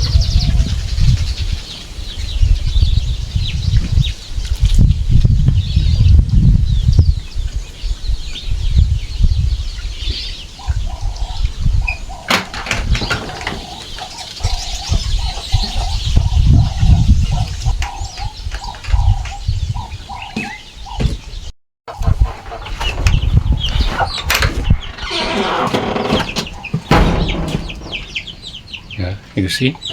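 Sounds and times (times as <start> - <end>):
small birds chirping: 0.0 - 29.9
wind rumbling on microphone: 0.0 - 29.9
chickens calling: 6.8 - 29.9.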